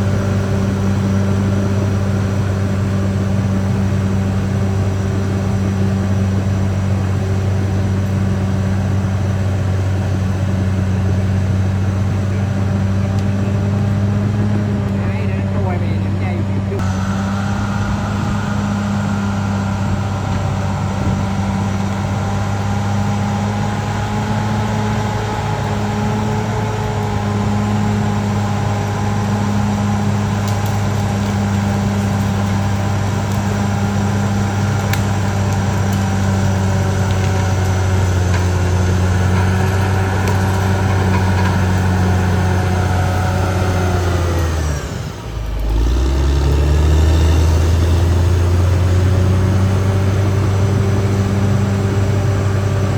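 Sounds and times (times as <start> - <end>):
bulldozer diesel engine running: 0.0 - 52.9.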